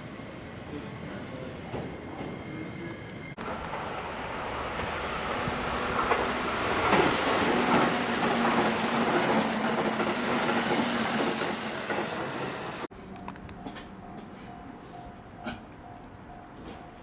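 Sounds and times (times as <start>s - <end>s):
electric train rumbling past: 0.0s - 17.0s
high wheel squeal: 4.6s - 12.9s.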